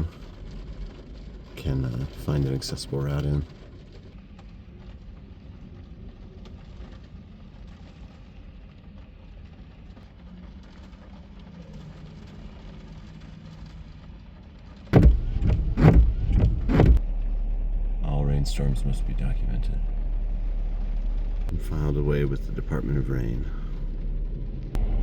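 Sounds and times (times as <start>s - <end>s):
faint rain hiss: 0.0s - 15.4s, 17.0s - 25.0s
steady low rumble: 0.0s - 25.0s
loud knocks and rustles: 14.9s - 17.0s.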